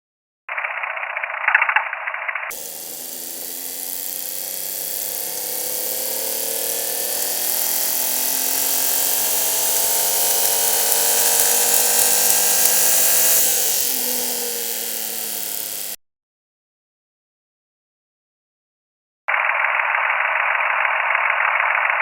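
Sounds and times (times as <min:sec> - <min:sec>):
engine running: 0:02.5 - 0:16.0.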